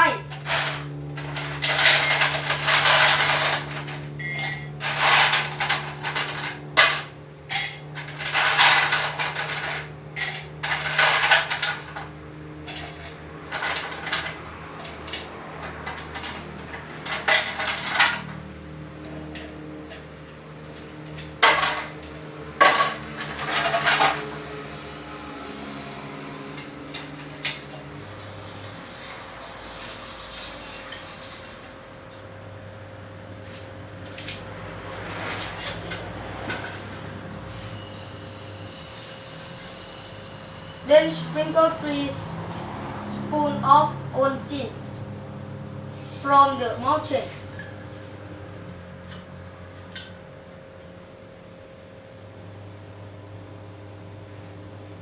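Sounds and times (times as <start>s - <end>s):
ice and glassware clinking: 4.2s - 9.6s.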